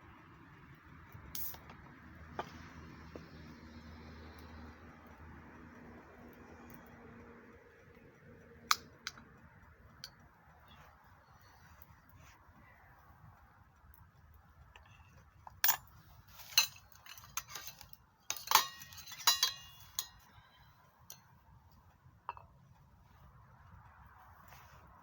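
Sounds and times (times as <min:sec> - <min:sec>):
cookware and utensils clinking: 0:15.5 - 0:20.5.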